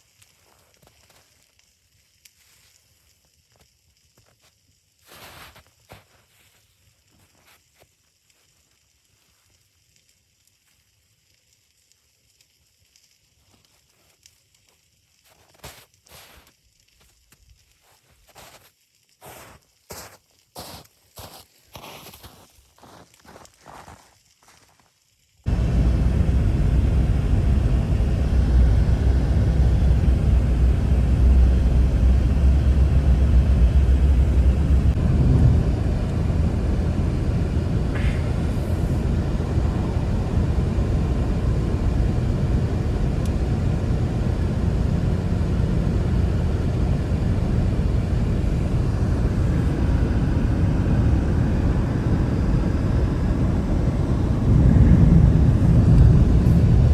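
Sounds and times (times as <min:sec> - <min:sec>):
blizzard wind roaring: 0:25.5 - 0:56.9.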